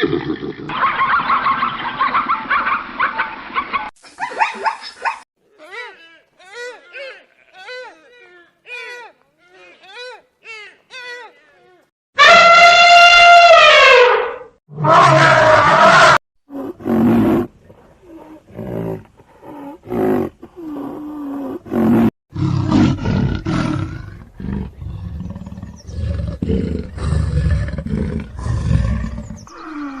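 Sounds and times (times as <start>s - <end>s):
falling horn-like call: 12.2s - 16.2s
big cat roaring: 14.7s - 30.0s.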